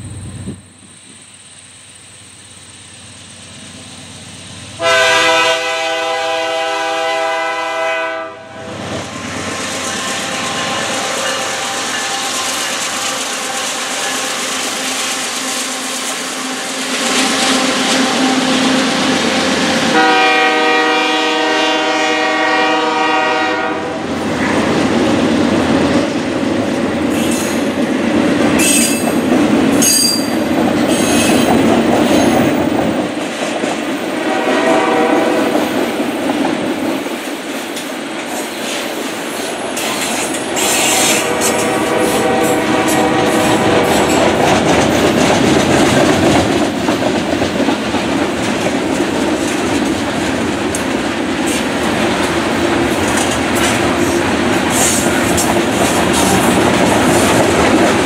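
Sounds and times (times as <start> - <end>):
freight train rumble: 0.0 - 58.0
train horn blasts: 4.8 - 12.4, 15.4 - 24.2, 34.2 - 35.7, 40.6 - 44.3
wheels clicking over rails: 42.8 - 58.0.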